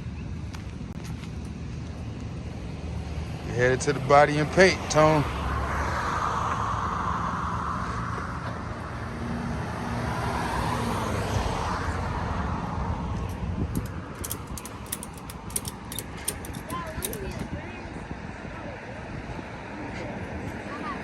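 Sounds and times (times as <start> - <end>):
car engine and tyre noise: 0.0 - 18.4
vehicles passing: 0.0 - 21.0
sharp clicks: 13.3 - 17.4.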